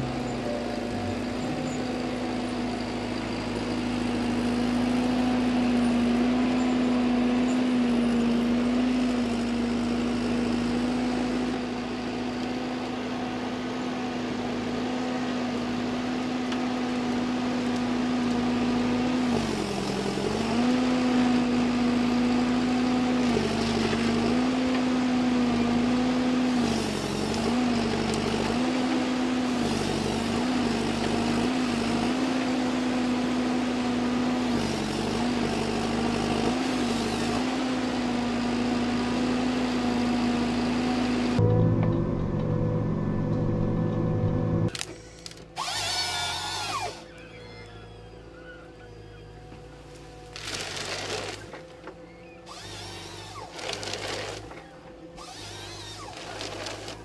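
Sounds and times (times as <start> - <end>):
diesel engine at high revs: 0.0 - 57.0.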